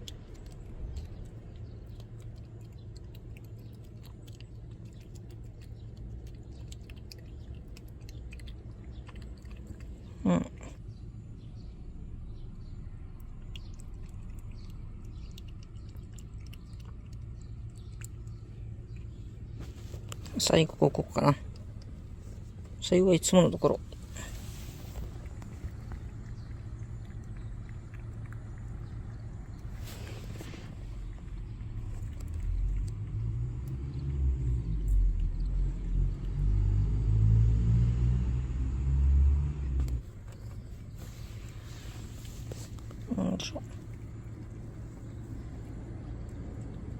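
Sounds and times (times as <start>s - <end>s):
cat licking and chewing: 0.0s - 10.8s, 13.0s - 22.9s, 23.6s - 33.9s, 40.0s - 46.9s
steady low rumble: 0.0s - 37.4s, 39.6s - 46.9s.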